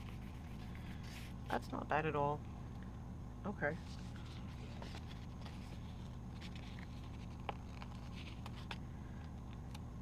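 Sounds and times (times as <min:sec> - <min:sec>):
steady low hum: 0:00.0 - 0:10.0
paper rustling and ticking: 0:04.6 - 0:09.8.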